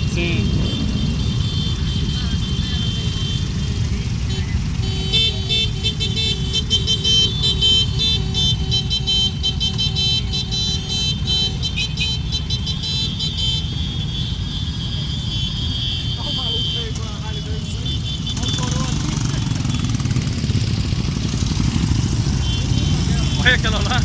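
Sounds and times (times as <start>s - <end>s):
motorcycles rumbling past: 0.0s - 11.7s, 16.6s - 24.0s.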